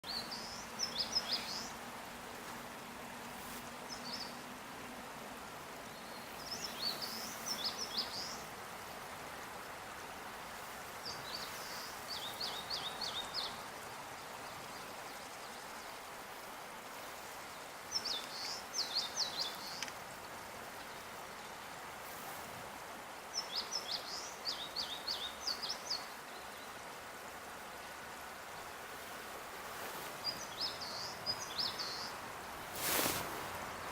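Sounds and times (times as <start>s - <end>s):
songbird singing: 0.0s - 4.8s, 5.6s - 8.6s, 10.9s - 16.1s, 16.9s - 21.7s, 23.2s - 26.9s, 29.0s - 33.9s
outdoor background noise: 0.0s - 33.9s.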